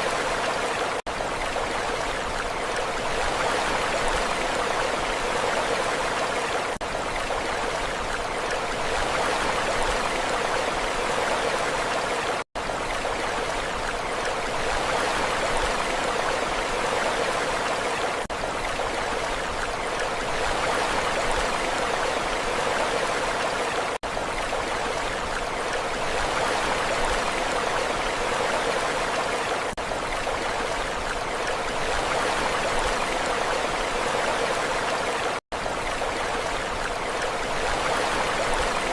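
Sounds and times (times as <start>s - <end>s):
sea surf washing: 36.0s - 38.9s.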